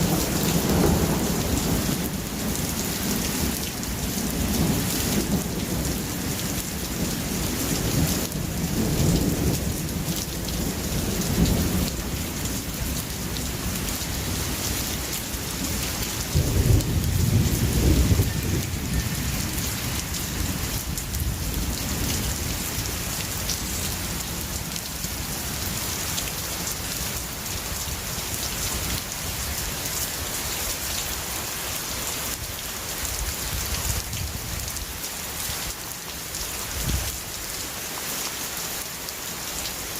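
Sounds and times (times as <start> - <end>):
steady rain falling: 0.0 - 39.9
rolling thunder: 16.3 - 22.6.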